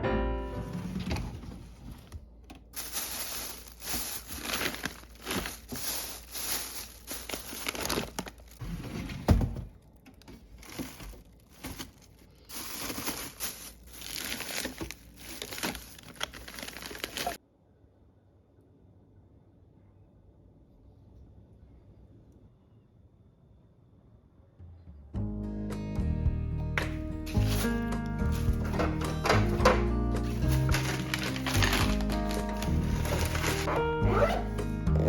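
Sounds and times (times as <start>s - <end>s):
plastic packaging crinkling: 1.8s - 17.4s, 27.3s - 33.9s.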